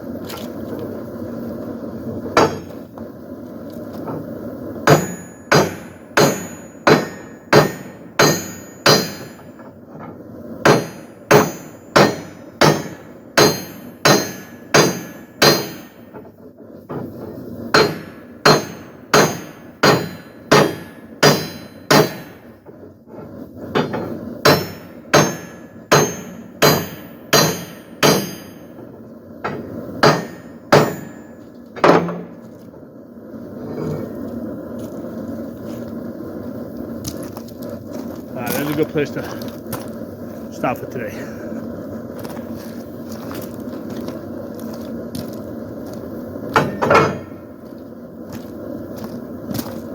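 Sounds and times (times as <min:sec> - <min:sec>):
hammer striking steel on anvil: 0:02.4 - 0:02.7, 0:04.9 - 0:09.7, 0:10.6 - 0:16.0, 0:17.7 - 0:22.5, 0:23.8 - 0:32.3, 0:46.5 - 0:47.4.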